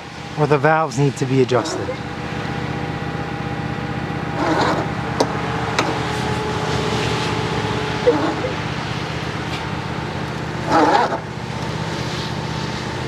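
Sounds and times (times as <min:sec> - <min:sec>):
lawn tractor engine cranking: 0:01.5 - 0:02.5, 0:04.1 - 0:12.0.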